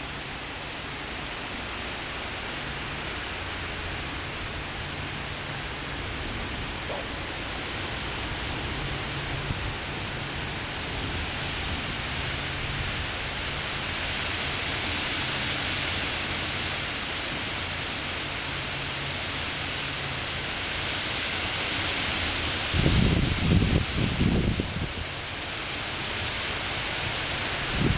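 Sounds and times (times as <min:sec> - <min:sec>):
wind buffeting microphone: 0:03.2 - 0:15.0, 0:22.2 - 0:25.2, 0:27.5 - 0:27.9
gusty wind rushing: 0:22.2 - 0:25.1, 0:27.5 - 0:27.9.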